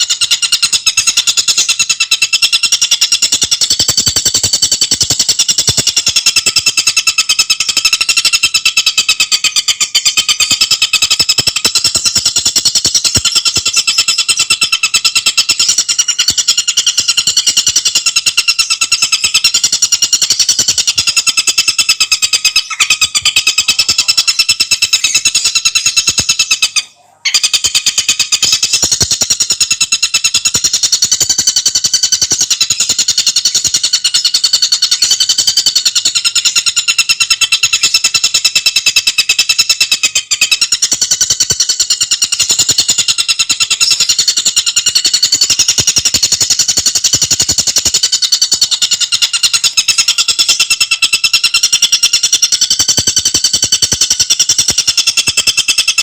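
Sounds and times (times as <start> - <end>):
bird singing rapid notes: 0.0 - 56.0.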